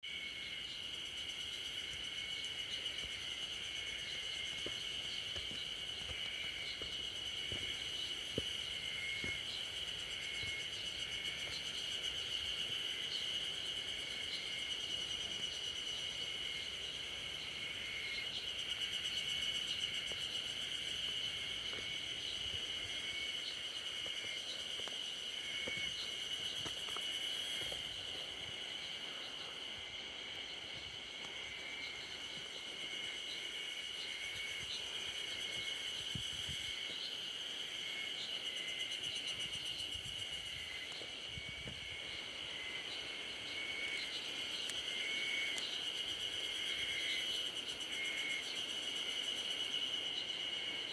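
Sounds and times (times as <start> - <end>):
insect chirps: 0.0 - 50.9
insects droning: 0.0 - 50.9
rhythmic insect pulsing: 0.1 - 50.8.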